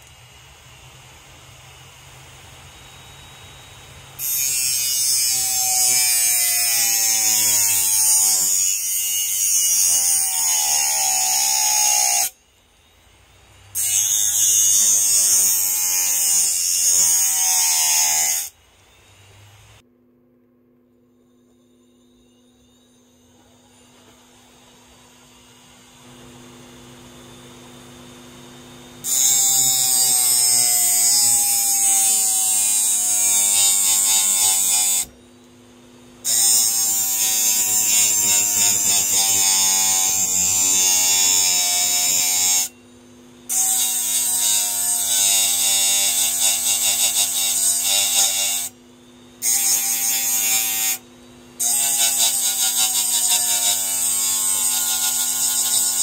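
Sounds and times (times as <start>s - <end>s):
blade grinding on sandpaper: 36.3s - 42.7s, 43.5s - 48.7s, 51.6s - 56.0s.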